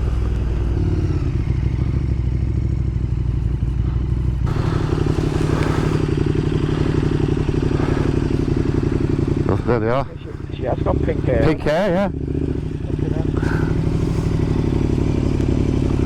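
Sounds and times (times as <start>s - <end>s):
motorcycle engine throbbing: 0.0s - 16.0s
rushing hiss: 4.5s - 9.4s.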